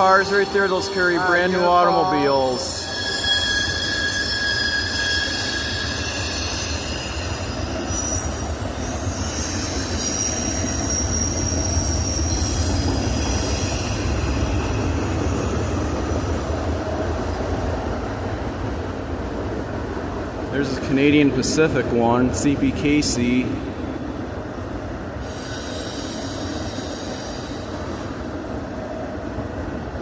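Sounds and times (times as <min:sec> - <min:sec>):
train wheels squealing: 0:00.0 - 0:17.2, 0:25.2 - 0:28.3
freight train rumbling past: 0:00.0 - 0:30.0.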